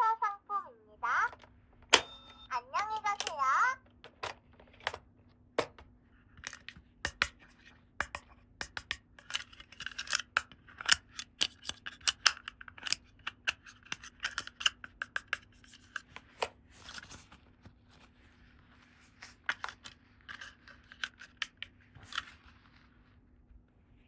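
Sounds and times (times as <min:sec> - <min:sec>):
plastic pieces clicking: 0:02.8 - 0:07.4, 0:08.0 - 0:16.4.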